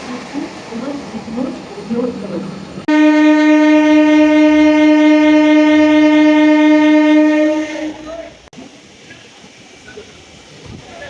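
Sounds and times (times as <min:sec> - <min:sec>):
passing train running: 0:00.0 - 0:11.0
train horn blast: 0:02.9 - 0:08.4.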